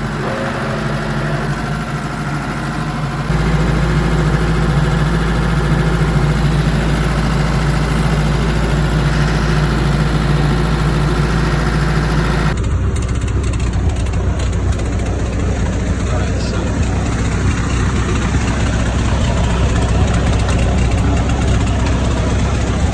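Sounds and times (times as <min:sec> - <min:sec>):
low-pitched engine drone: 0:00.0 - 0:22.9
tractor engine running: 0:00.0 - 0:22.9.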